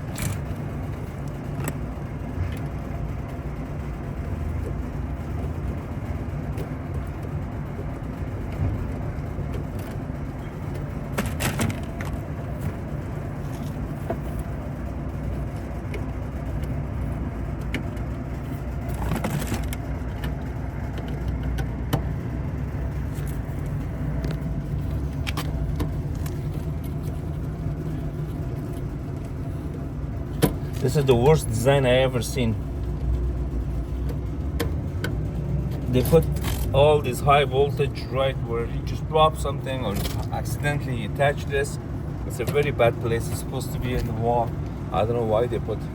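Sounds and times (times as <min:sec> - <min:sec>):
low mechanical drone: 0:00.0 - 0:45.9
clicks and rattles: 0:18.9 - 0:22.1.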